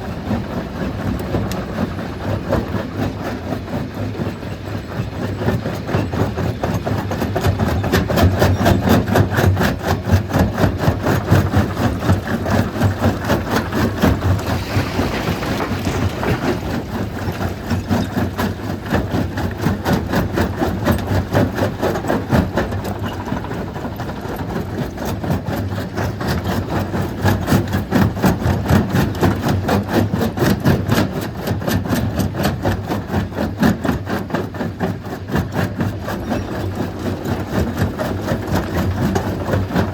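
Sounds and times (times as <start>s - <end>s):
stone crusher clattering: 12.0s - 19.6s.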